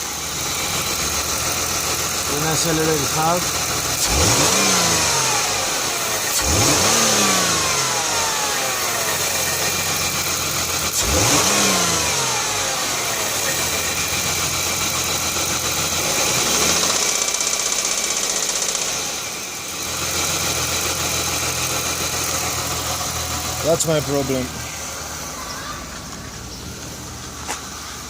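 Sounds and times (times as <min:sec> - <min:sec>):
car engine revving and idling: 0:00.0 - 0:28.0
rhythmic engine knocking: 0:13.2 - 0:23.6.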